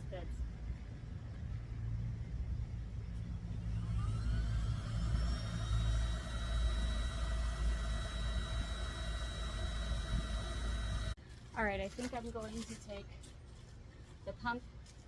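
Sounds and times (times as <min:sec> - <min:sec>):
air pump motor whining: 0:03.4 - 0:11.2.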